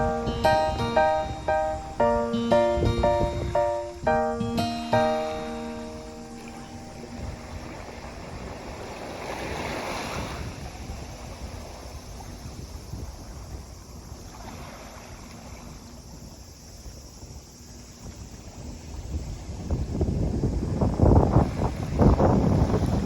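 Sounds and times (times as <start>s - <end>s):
wind rumble on microphone: 0.0s - 4.6s, 6.4s - 23.0s
sea waves washing onto beach: 0.0s - 15.9s, 20.8s - 23.0s.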